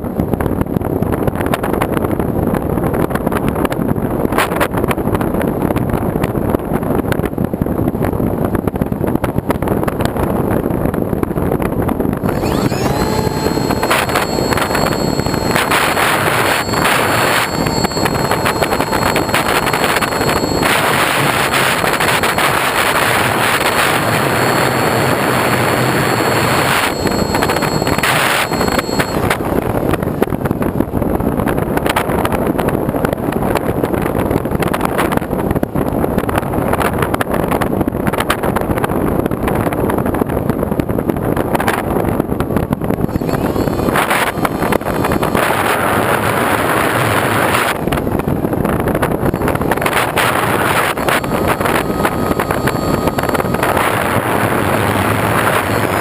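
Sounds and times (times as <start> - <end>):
wind rushing on microphone: 0.0 - 56.0
steady whine: 12.1 - 31.2, 42.8 - 56.0.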